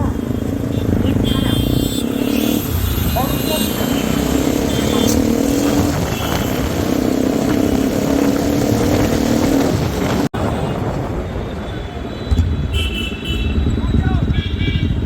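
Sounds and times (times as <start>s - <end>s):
motorcycle engine running: 0.0s - 10.3s
wind and road noise: 0.0s - 15.0s.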